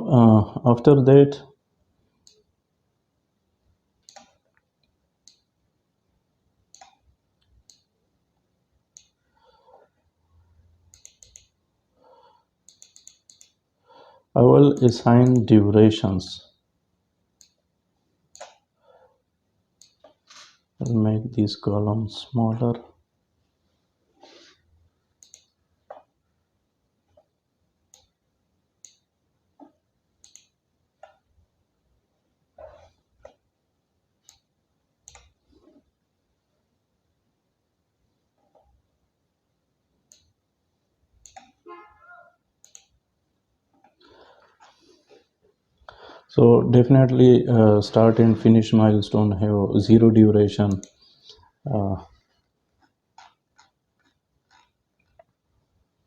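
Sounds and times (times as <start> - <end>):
faint room hiss: 0.0 - 56.0
computer mouse clicks: 2.2 - 2.5, 4.0 - 5.5, 6.7 - 7.9, 8.9 - 9.2, 10.9 - 11.6, 12.6 - 13.6, 17.4 - 17.6, 18.3 - 18.7, 19.8 - 21.0, 25.2 - 26.2, 27.9 - 28.2, 28.8 - 31.2, 34.2 - 35.5, 40.0 - 40.4, 41.2 - 41.6, 42.6 - 43.0, 50.7 - 51.4, 52.8 - 55.4.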